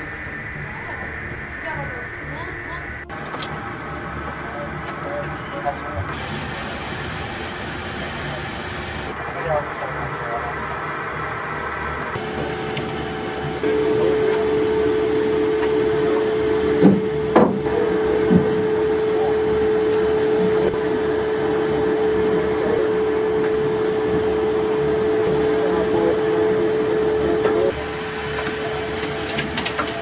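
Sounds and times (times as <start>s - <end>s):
machinery humming: 0.0s - 30.0s.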